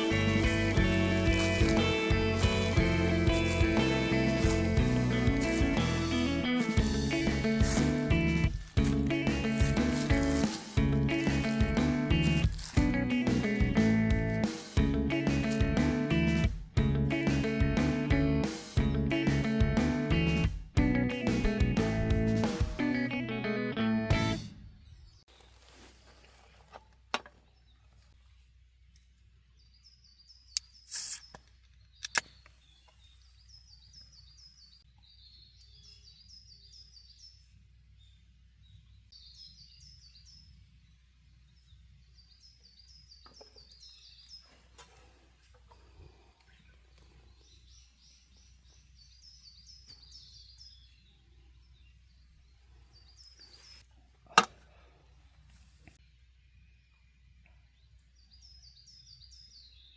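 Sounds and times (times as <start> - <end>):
birds singing: 0.0 - 15.6, 27.4 - 54.1, 56.0 - 59.9
brief scrape: 30.8 - 31.4.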